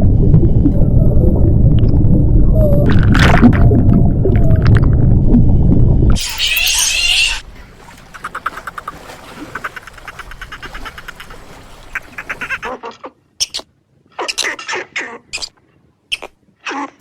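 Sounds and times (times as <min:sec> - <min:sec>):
animal calls falling in pitch: 0:06.2 - 0:12.7
fast run of short animal calls: 0:06.2 - 0:12.7.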